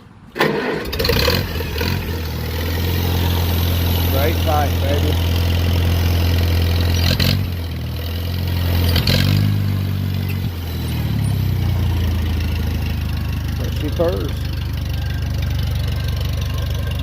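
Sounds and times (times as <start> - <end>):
tractor engine idling: 0.0 - 17.0
sharp engine cracks: 0.3 - 7.6.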